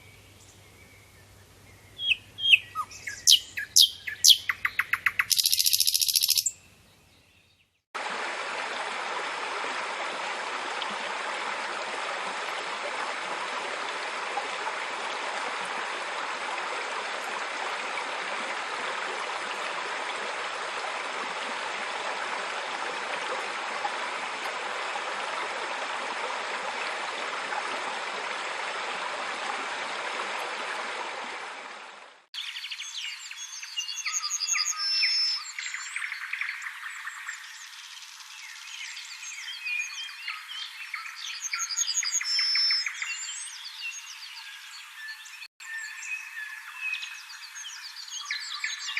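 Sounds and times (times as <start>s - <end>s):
high chirping: 2.0s - 6.6s
rushing water: 8.0s - 45.0s.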